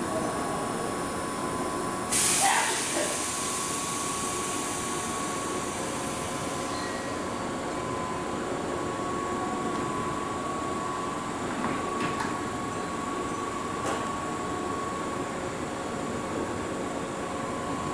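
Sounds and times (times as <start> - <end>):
loud hiss: 2.1 - 6.7.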